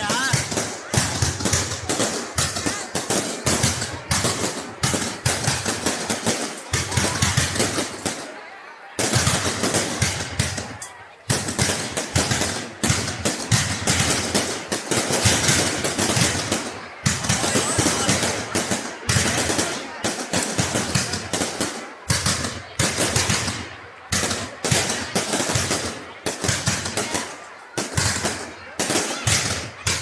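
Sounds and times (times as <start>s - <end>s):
fireworks bangs and crackle: 0.0s - 30.0s.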